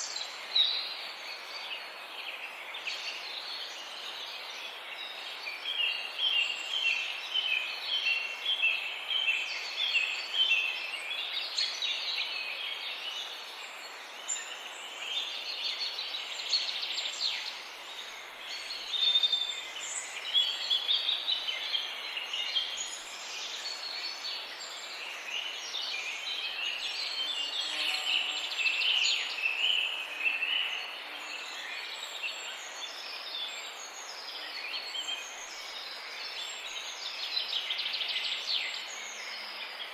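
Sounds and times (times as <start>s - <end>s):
background hiss: 0.0s - 39.9s.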